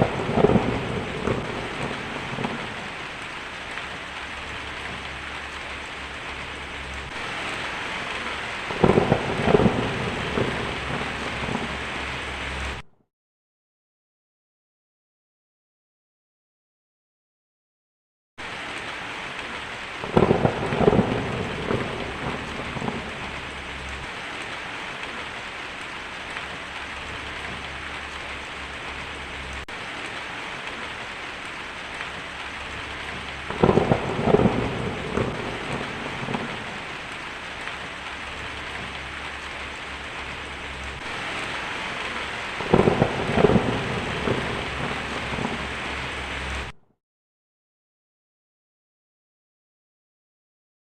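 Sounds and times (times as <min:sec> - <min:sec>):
rolling thunder: 0:00.0 - 0:12.8, 0:20.0 - 0:25.4, 0:31.7 - 0:46.8
heavy rain on a tin roof: 0:00.0 - 0:12.9, 0:18.4 - 0:46.8.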